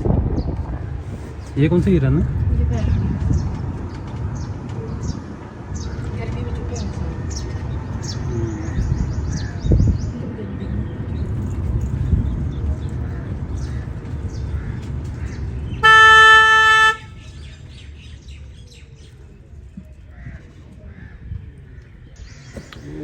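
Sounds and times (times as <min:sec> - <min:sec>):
vehicle engine rumbling: 0:00.0 - 0:23.0
vehicle horn honking: 0:15.7 - 0:17.4.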